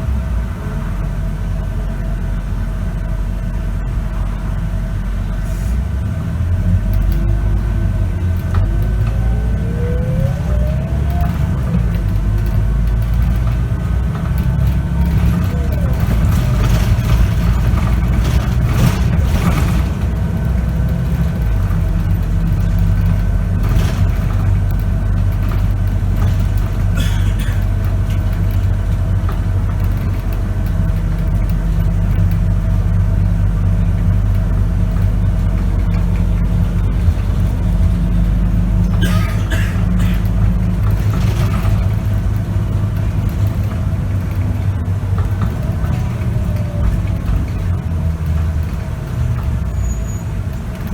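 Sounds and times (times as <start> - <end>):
bus engine drone: 0.0 - 50.9.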